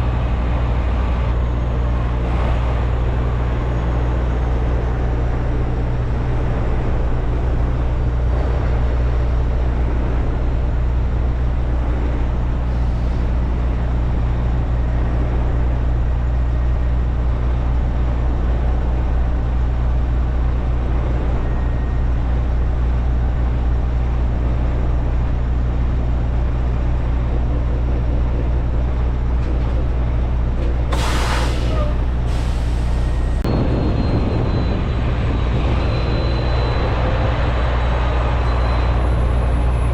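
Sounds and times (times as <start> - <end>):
diesel truck engine running: 0.0 - 39.9
air brake hissing: 30.9 - 33.4.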